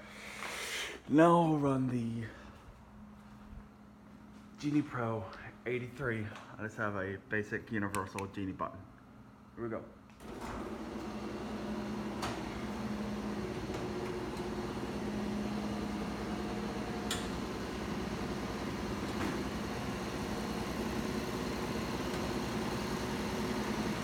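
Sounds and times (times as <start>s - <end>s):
garage door opener motor hum: 10.1s - 24.0s.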